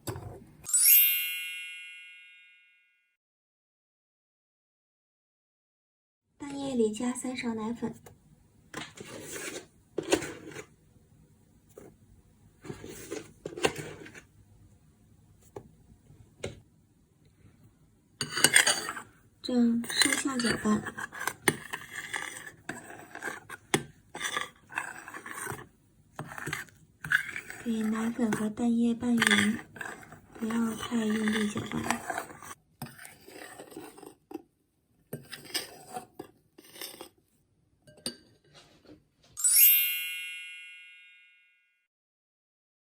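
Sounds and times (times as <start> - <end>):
utensil scraping in a bowl: 8.8 - 10.7, 12.6 - 14.3, 18.2 - 34.4, 35.1 - 37.3.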